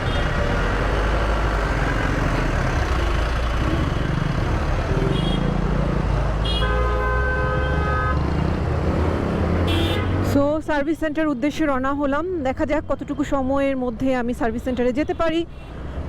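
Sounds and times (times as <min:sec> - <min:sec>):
road and wind noise: 0:00.0 - 0:16.0
vehicle horns honking: 0:04.9 - 0:05.6, 0:06.4 - 0:08.3, 0:09.6 - 0:10.3.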